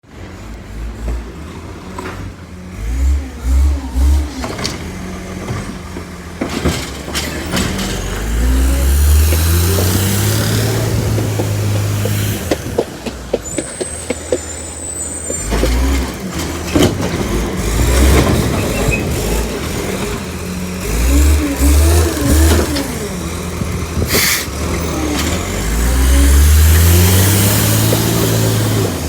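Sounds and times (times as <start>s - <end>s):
garbage truck engine revving: 0.1s - 29.0s
sharp clicks and knocks: 9.1s - 14.5s, 27.2s - 29.0s.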